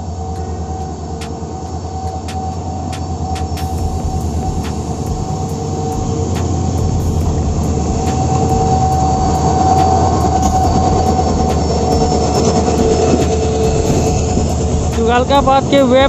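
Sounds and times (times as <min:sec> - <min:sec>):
faint steady squeal: 0:00.0 - 0:16.0
train rumble: 0:00.0 - 0:16.0.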